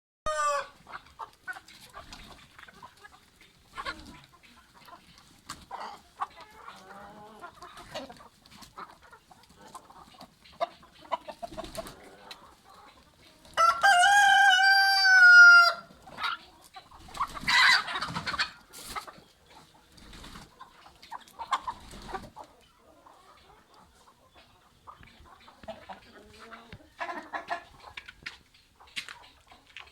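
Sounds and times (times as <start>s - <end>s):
rooster crowing: 0.3s - 0.8s, 13.6s - 15.9s
chickens clucking: 0.3s - 29.9s.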